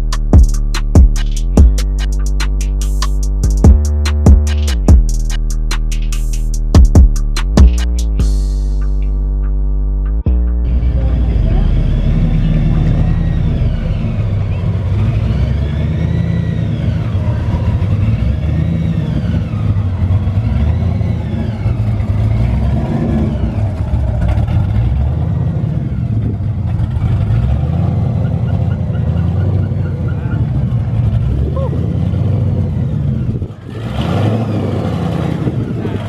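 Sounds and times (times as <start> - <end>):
car engine rumbling: 0.0 - 36.0
faint high rising and falling tones: 10.6 - 22.0.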